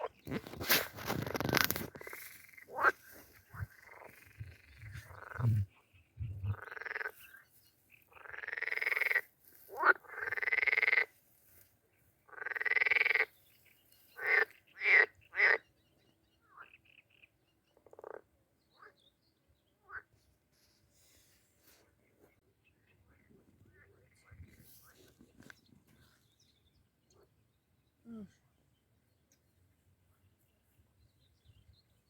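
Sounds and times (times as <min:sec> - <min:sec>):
frogs croaking: 0:01.2 - 0:11.2, 0:12.2 - 0:13.4, 0:14.1 - 0:15.7, 0:16.4 - 0:19.0.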